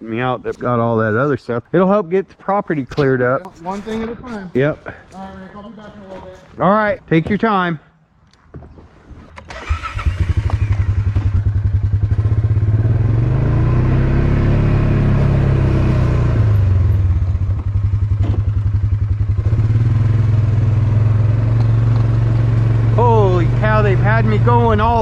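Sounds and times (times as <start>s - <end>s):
vehicle engine starting and running: 9.3s - 25.0s.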